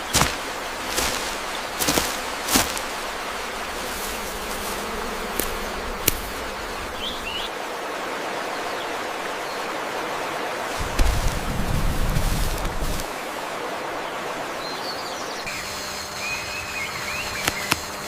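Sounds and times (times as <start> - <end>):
flowing water rushing: 0.0 - 16.1
sharp clicks: 17.4 - 17.9.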